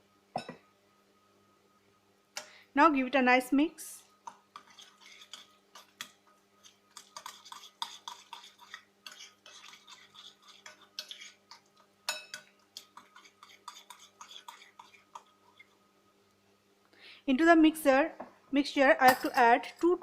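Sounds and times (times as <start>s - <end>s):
utensil scraping a bowl: 4.2s - 15.8s.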